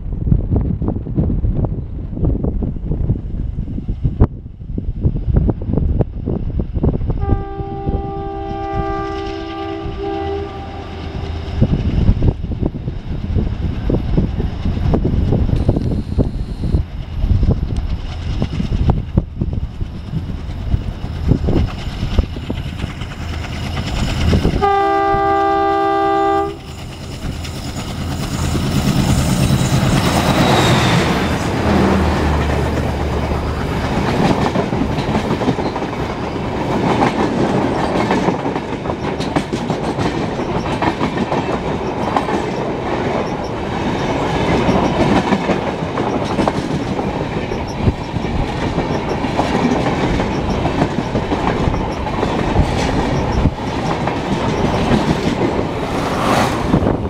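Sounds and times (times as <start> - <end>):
train coaches clickety-clack: 5.8 - 57.0
locomotive horn: 7.2 - 11.2, 24.6 - 26.7
locomotive engine rumbling: 7.3 - 36.8.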